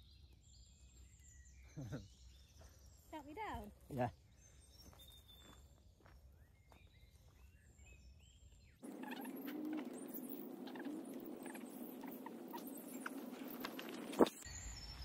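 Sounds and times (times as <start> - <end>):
faint bird calls: 8.8 - 14.4.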